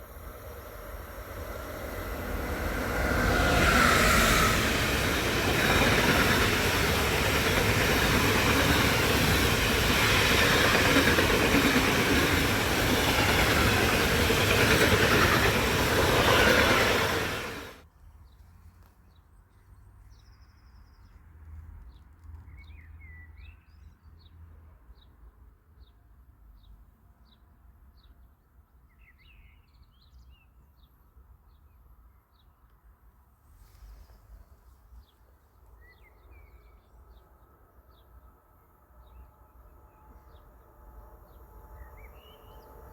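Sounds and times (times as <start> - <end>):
train wheels rushing on rails: 0.0 - 17.8.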